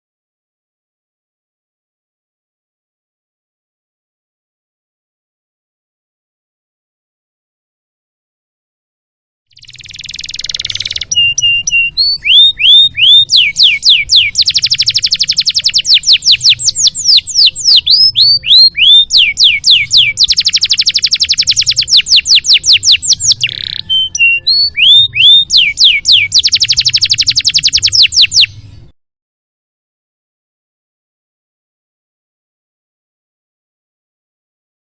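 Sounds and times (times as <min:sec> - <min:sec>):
canary singing: 0:09.5 - 0:28.9.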